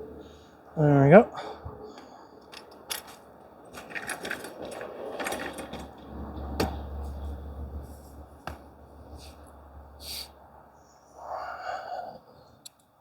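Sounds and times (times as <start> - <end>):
tent handling clicks and rustling: 2.5 - 7.2.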